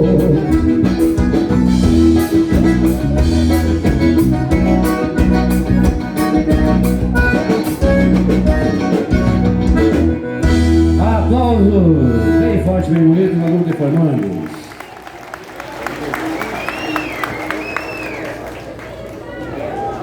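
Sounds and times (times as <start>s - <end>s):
steady drum beat: 0.0s - 11.6s
dance band sustained chords: 0.0s - 13.3s.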